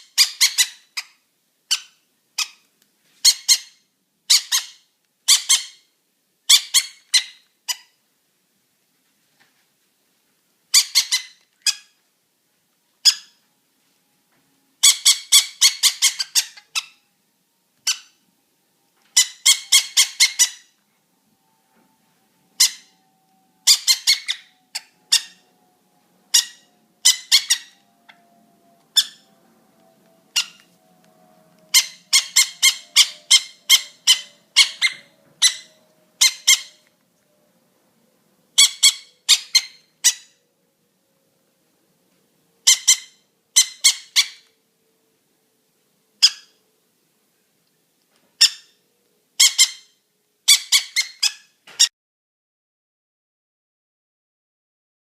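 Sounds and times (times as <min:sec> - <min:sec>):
parrot chick begging calls: 0:00.1 - 0:05.9, 0:06.5 - 0:08.0, 0:10.7 - 0:12.0, 0:13.0 - 0:13.4, 0:14.8 - 0:17.1, 0:17.8 - 0:18.2, 0:19.2 - 0:20.8, 0:22.5 - 0:23.0, 0:23.6 - 0:25.6, 0:26.3 - 0:28.3, 0:28.9 - 0:29.3, 0:30.3 - 0:30.8, 0:31.7 - 0:36.9, 0:38.5 - 0:40.4, 0:42.6 - 0:44.5, 0:46.2 - 0:46.6, 0:48.4 - 0:48.8, 0:49.4 - 0:51.8.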